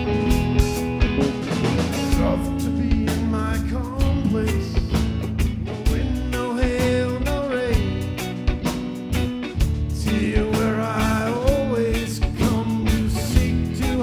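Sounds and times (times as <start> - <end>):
sliding lead melody: 0.0 - 6.0
bass: 0.0 - 14.0
drum kit beats: 0.0 - 14.0
guitar: 0.0 - 14.0.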